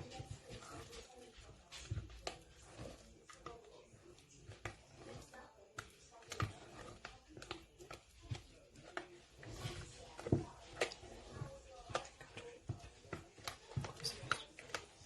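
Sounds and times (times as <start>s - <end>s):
utensil scraping a mixing bowl: 0.0s - 15.0s.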